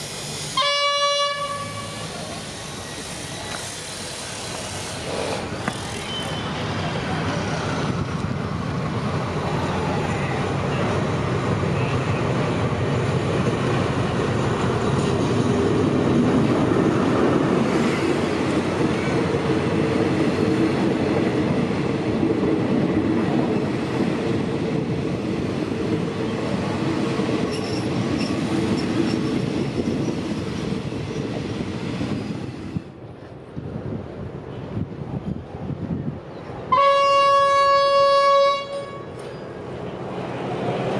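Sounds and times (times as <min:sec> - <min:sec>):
train wheels rumbling on rails: 0:00.0 - 0:40.9
faint wheel squeals: 0:05.7 - 0:07.6.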